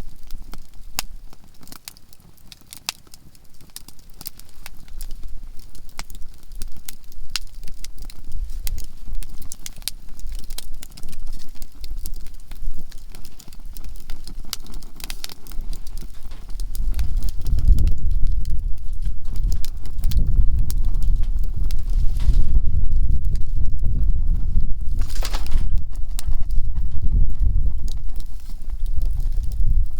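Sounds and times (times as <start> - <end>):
campfire crackling and popping: 0.0 - 29.9
loud uneven low rumble: 16.2 - 29.9.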